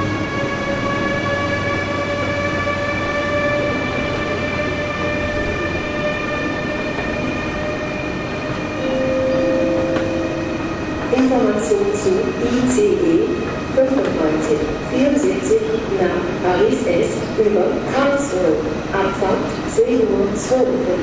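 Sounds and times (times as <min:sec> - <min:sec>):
train running noise: 0:00.0 - 0:21.0
train humming held tones: 0:03.6 - 0:17.3
lower set of tones: 0:08.8 - 0:11.6.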